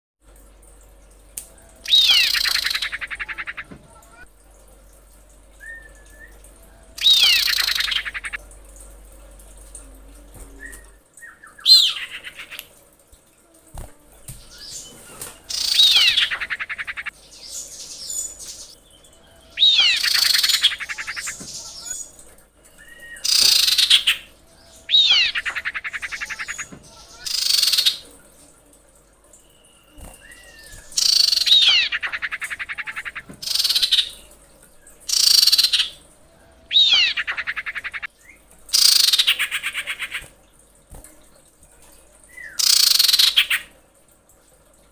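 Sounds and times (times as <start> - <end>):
bird rasping trill: 24.9 - 26.6, 36.7 - 38.0.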